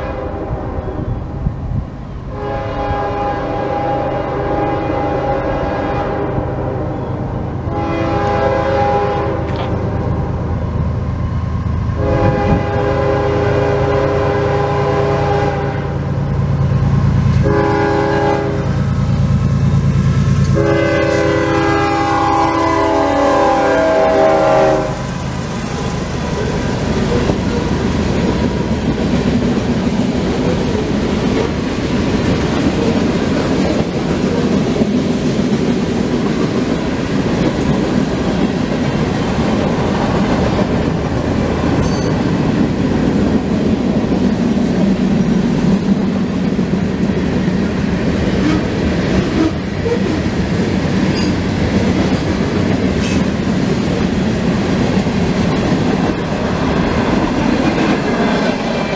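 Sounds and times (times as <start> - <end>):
locomotive horn: 0.0 - 1.2, 2.3 - 10.1, 12.0 - 16.1, 17.3 - 19.0, 20.4 - 25.1, 48.3 - 50.2
train wheels rumbling on rail: 0.0 - 58.9
clickety-clack over rail joints: 9.4 - 10.5, 25.2 - 58.9.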